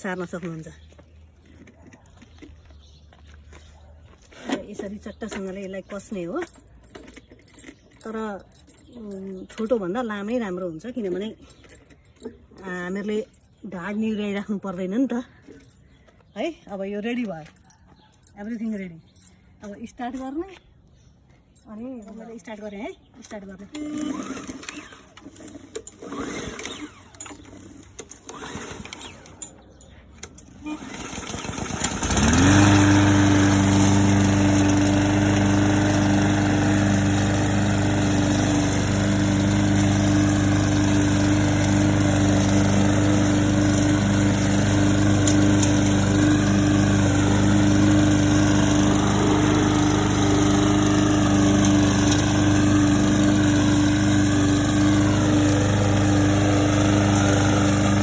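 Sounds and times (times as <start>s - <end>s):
lawn mower engine starting: 23.6s - 58.0s.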